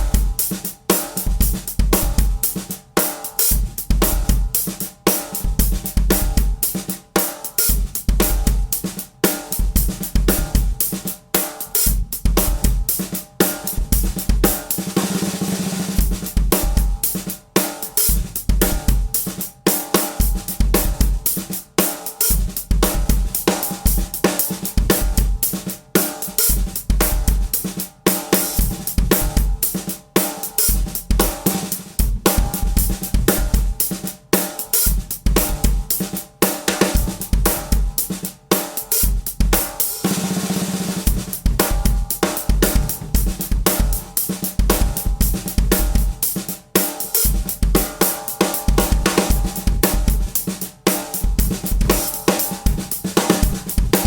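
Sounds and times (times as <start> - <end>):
drum kit playing a groove: 0.0 - 54.0.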